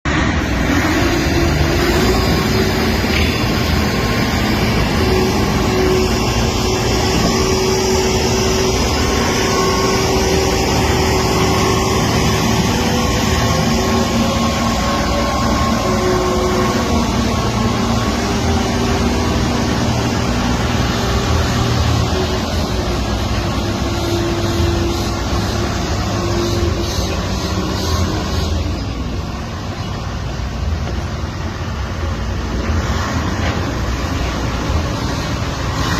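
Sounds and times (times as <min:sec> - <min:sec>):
heavy engine machinery rumbling: 0:00.0 - 0:35.9
machinery whining tones: 0:00.1 - 0:31.4.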